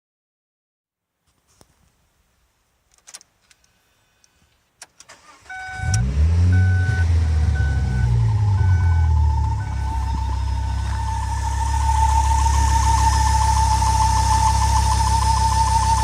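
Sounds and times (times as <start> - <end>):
car engine starting and idling: 4.8 - 16.0
dashboard warning chime beeping: 5.2 - 16.0
wavering whistle: 6.6 - 16.0.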